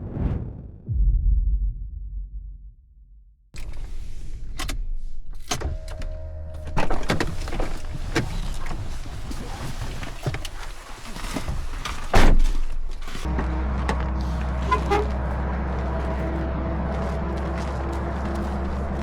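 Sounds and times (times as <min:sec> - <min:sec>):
loud thump: 0:00.0 - 0:03.4.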